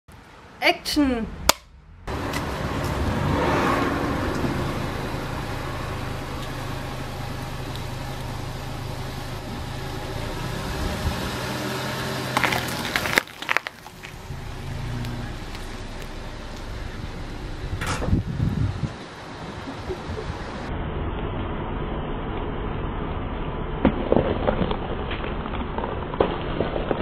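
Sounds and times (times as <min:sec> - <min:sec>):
car engine running: 0:01.7 - 0:26.1.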